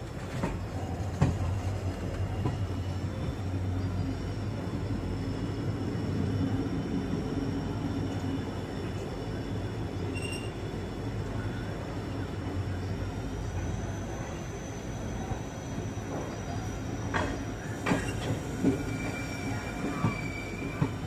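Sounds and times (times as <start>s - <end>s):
train rumbling: 0.0s - 21.0s
sharp train clacks: 17.0s - 19.2s.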